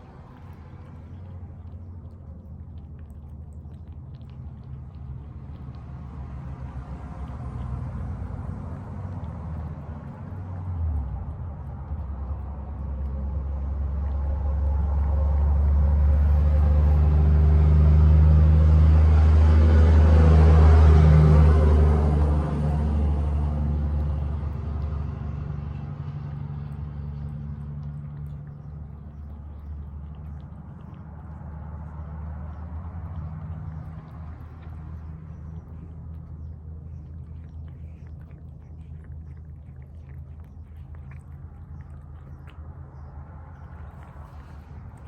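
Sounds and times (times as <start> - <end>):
cats chewing wet food: 0.0 - 45.0
steady low rumble: 0.0 - 45.0.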